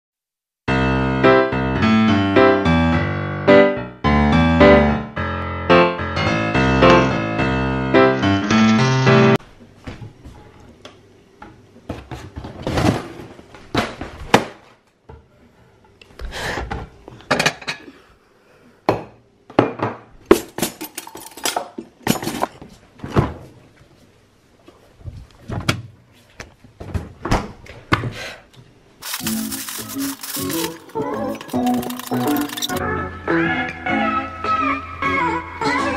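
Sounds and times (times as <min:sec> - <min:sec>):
household items knocking and clunking: 0:29.0 - 0:32.8.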